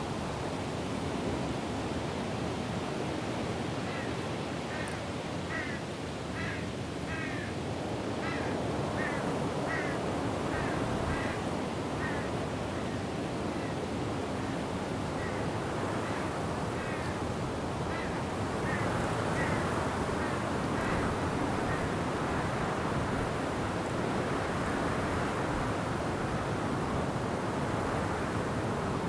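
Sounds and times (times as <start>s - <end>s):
wind and rain through trees: 0.0s - 29.0s.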